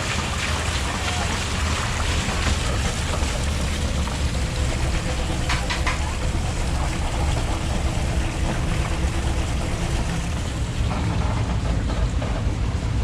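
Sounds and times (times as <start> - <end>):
farm machinery engine rumbling: 0.0 - 13.0.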